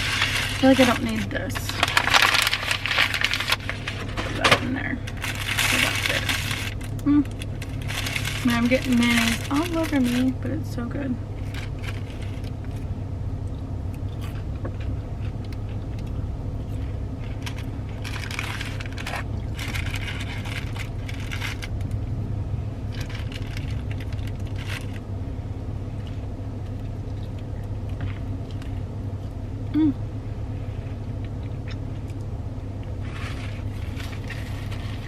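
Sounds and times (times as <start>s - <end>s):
chewing and crunching: 0.0s - 10.4s, 11.4s - 22.1s, 22.8s - 25.1s, 32.9s - 35.0s
crinkly crackly noise: 0.0s - 29.9s, 30.6s - 35.0s
steady low hum: 0.0s - 35.0s.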